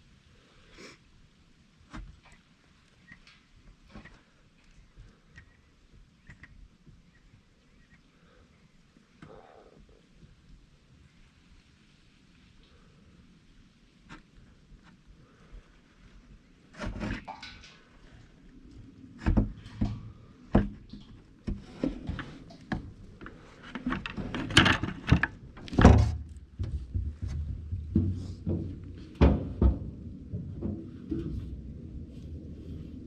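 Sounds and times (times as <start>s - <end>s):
knocks of hard objects handled: 23.8s - 31.4s.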